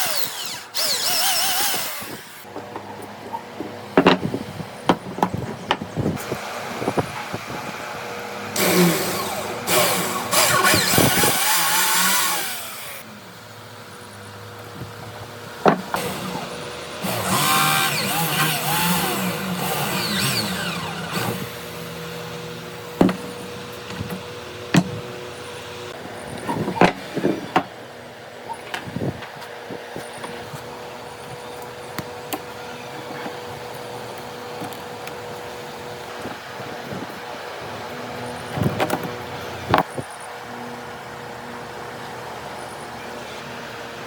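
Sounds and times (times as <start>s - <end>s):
power tool motor running: 0.0s - 2.5s, 8.4s - 13.0s, 15.7s - 25.9s.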